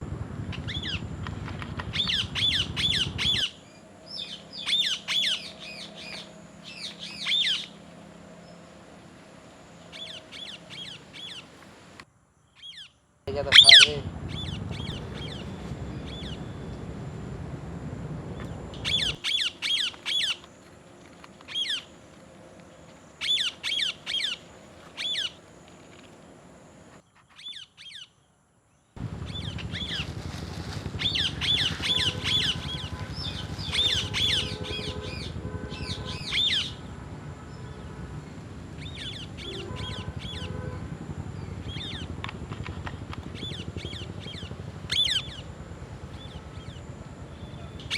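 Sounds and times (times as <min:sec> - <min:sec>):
low rumble: 0:00.0 - 0:04.8, 0:13.3 - 0:19.2, 0:29.0 - 0:47.9
parrots squawking: 0:13.3 - 0:15.5, 0:31.0 - 0:36.8.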